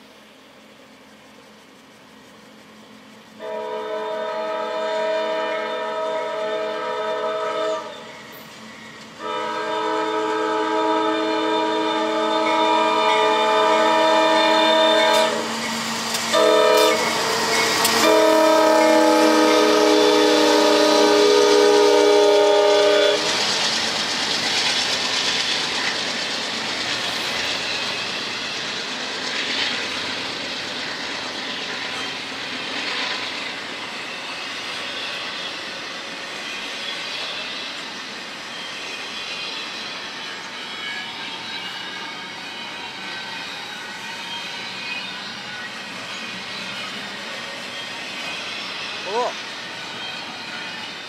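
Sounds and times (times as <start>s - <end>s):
train wheels rumbling on rail: 0.0s - 51.0s
train horn blast: 3.4s - 7.9s, 9.2s - 15.5s, 16.3s - 23.3s.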